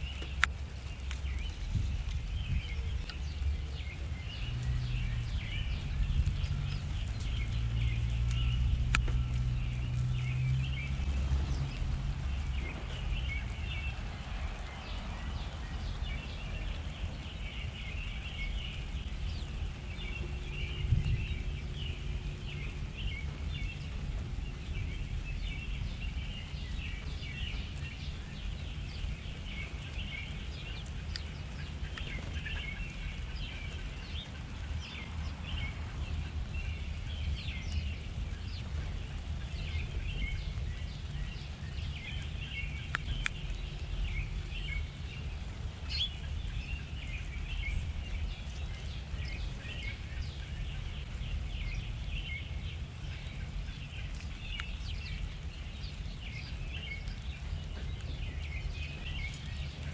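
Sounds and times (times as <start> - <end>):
low background rumble: 0.0 - 59.9
small birds chirping: 0.0 - 59.9.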